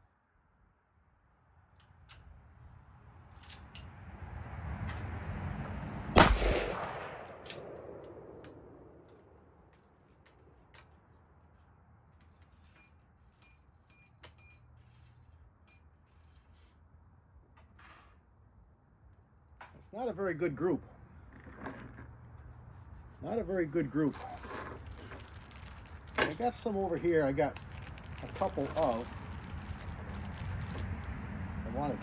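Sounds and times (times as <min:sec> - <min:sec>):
rifle shot: 0:06.2 - 0:09.1.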